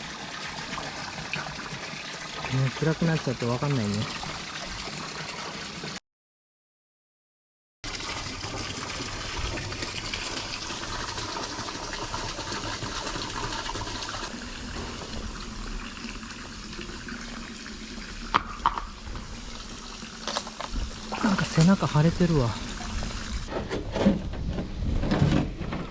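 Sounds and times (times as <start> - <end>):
running water splashing: 0.0 - 6.0, 7.9 - 23.5.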